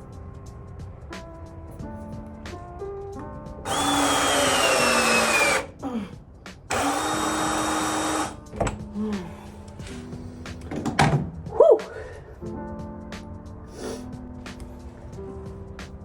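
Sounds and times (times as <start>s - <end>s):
background music: 0.0s - 16.0s
small power tool motor: 3.7s - 5.7s, 6.7s - 8.4s.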